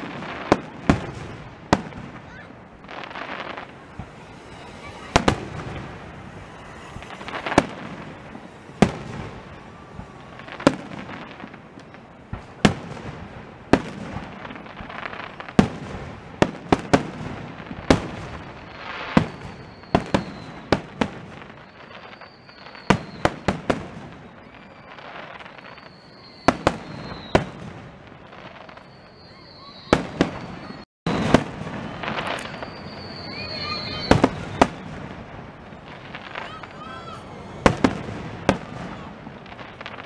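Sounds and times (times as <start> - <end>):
fireworks bursting: 0.0 - 40.0
faint high whistle: 2.1 - 12.3, 18.3 - 40.0.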